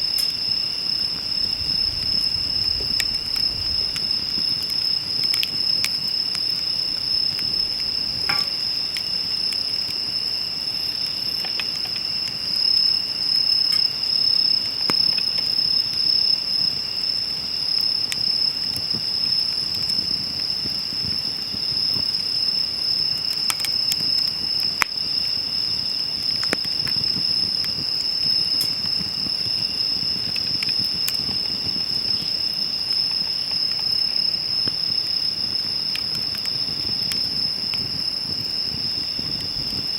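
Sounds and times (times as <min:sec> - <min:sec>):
burning firewood crackling: 0:00.0 - 0:39.9
insects trilling: 0:00.0 - 0:39.9.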